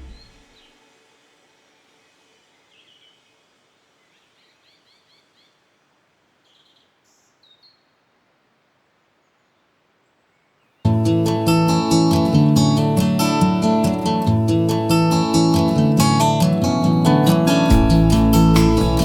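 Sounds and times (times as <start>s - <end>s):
bird chirping: 0.0s - 0.8s.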